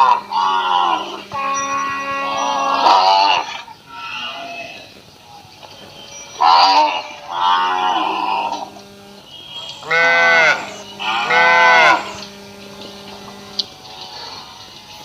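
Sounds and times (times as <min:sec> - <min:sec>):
cow mooing: 0:00.0 - 0:05.0, 0:06.3 - 0:08.9, 0:09.7 - 0:13.6.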